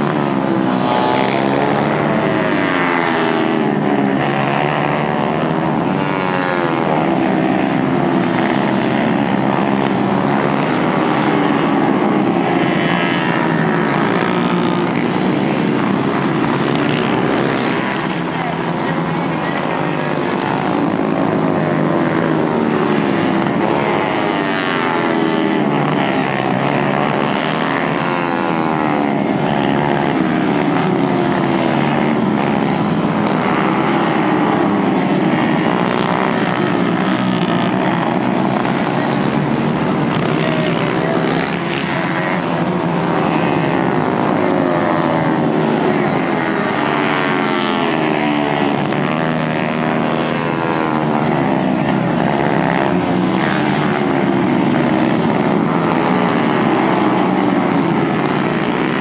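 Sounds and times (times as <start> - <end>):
racing motorcycle engines: 0.0 - 59.0.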